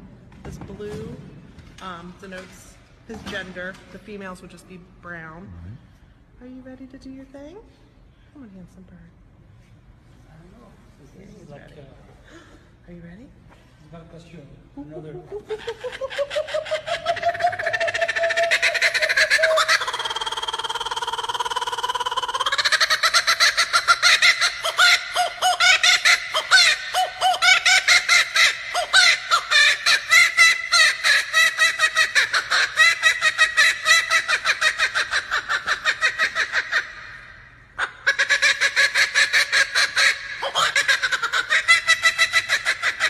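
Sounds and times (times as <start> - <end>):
kookaburra laughing call: 14.9 - 43.0.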